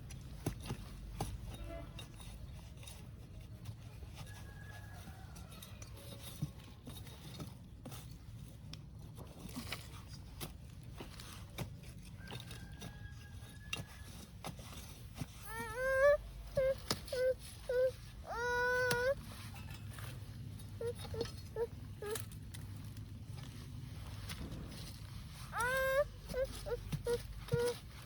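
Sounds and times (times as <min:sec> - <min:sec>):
hand tool digging into soil: 0:00.0 - 0:28.0
low steady rumble: 0:06.9 - 0:28.0.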